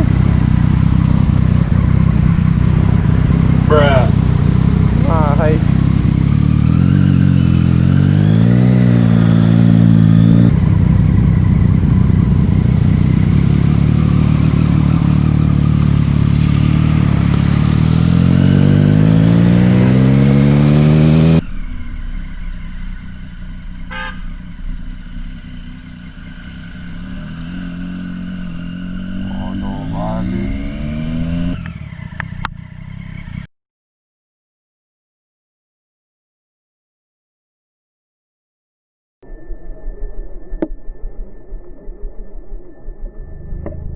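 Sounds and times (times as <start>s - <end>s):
motorcycle engine accelerating: 0.0s - 33.5s.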